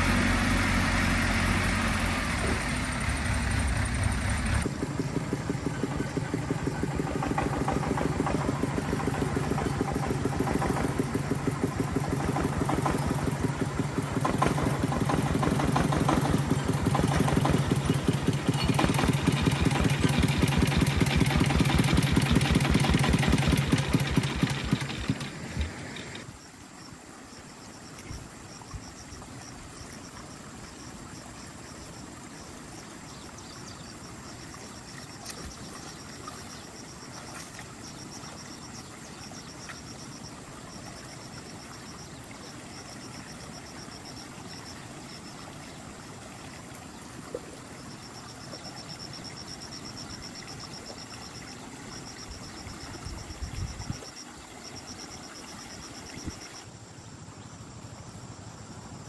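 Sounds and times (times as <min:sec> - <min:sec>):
agricultural vehicle engine running: 0:00.0 - 0:26.4.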